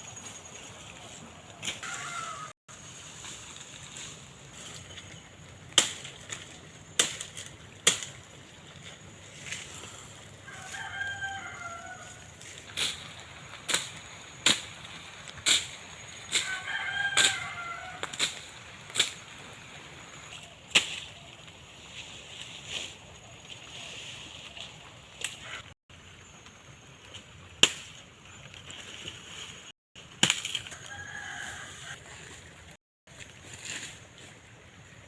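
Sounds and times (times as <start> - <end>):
rooster crowing: 1.8 - 2.6, 10.4 - 12.3, 16.4 - 18.1, 30.7 - 32.1
blade chopping undergrowth: 5.6 - 8.3, 12.4 - 19.4, 27.2 - 31.4.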